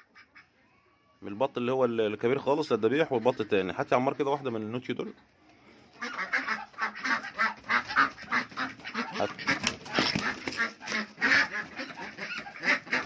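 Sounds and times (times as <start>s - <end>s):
ducks quacking: 0.0s - 0.6s, 2.3s - 4.8s, 5.9s - 13.0s.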